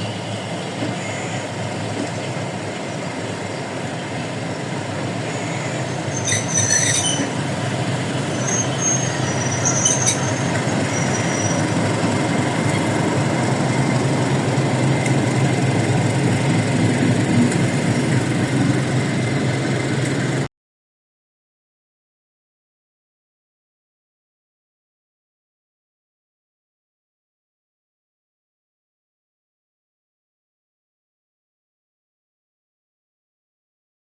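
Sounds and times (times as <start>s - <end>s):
high wheel squeals: 0.0s - 14.7s
train rumbling along rails: 0.0s - 20.5s.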